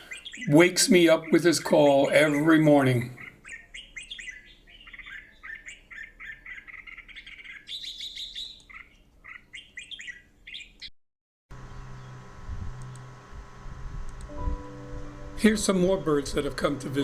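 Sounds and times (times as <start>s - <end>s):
bird chirping: 0.0s - 10.9s.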